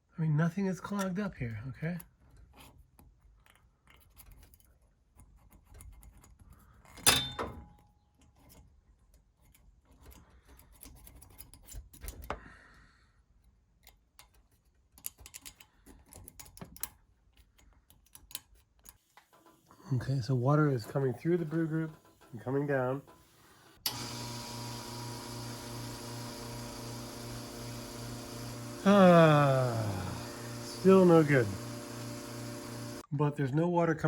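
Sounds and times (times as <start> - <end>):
metal parts clicking and clinking: 13.8 - 19.5.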